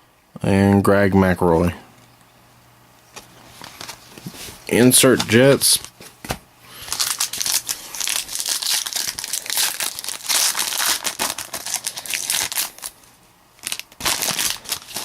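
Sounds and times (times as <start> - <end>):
wrapper crinkling: 3.5 - 4.5, 6.7 - 15.0
card pack wrapper tearing: 6.8 - 13.0, 13.6 - 15.0.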